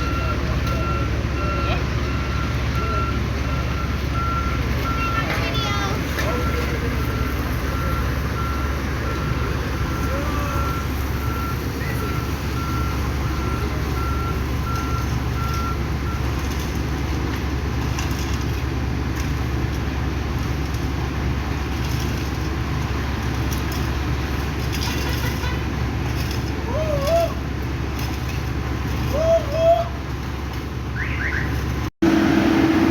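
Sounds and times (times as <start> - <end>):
reversing alarm beeping: 0.0 - 16.3
diesel machinery running: 0.0 - 32.9.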